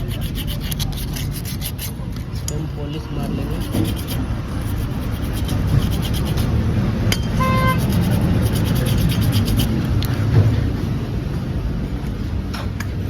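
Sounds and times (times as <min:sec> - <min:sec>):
hand polishing rubbing strokes: 0:00.0 - 0:02.2, 0:03.4 - 0:06.6, 0:07.4 - 0:09.9
steady low rumble: 0:03.3 - 0:12.0.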